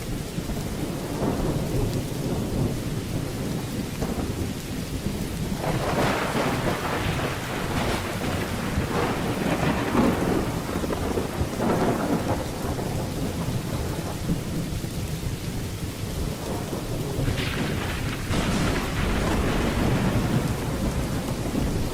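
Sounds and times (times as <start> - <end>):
rain falling: 0.0 - 21.9
thunder rolling: 0.7 - 14.9, 15.5 - 21.9
sharp thunder crack: 5.5 - 14.4, 16.4 - 21.9.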